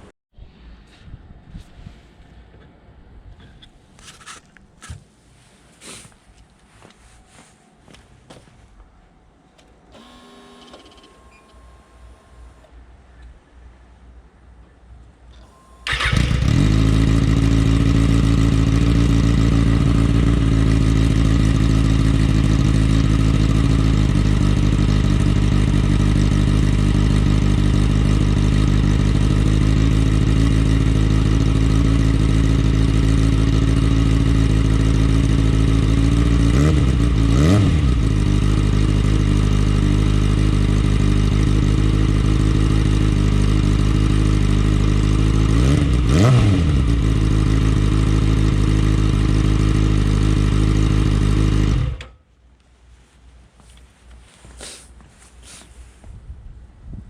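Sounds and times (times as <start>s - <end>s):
engine throttle blip: 9.9s - 13.3s, 15.3s - 31.4s
motorcycle engine idling: 15.8s - 52.2s.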